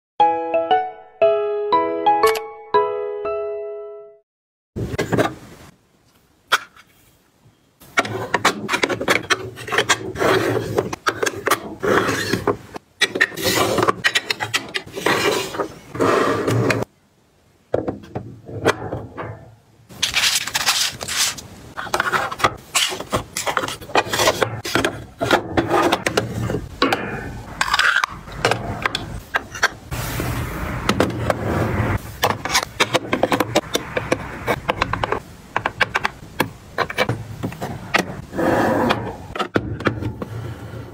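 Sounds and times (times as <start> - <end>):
household items clicking and scraping: 7.9 - 16.9, 19.9 - 29.8, 30.9 - 38.3.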